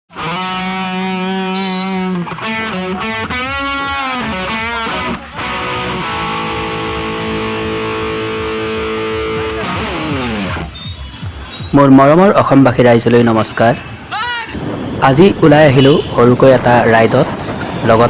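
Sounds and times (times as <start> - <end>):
electric guitar bending notes: 0.1 - 11.0.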